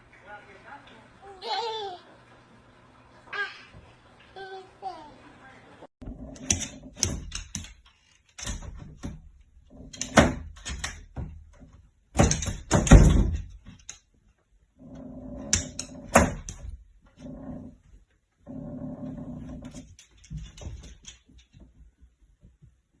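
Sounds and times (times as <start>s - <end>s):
sharp clicks and knocks: 6.3s - 14.1s, 15.4s - 16.8s.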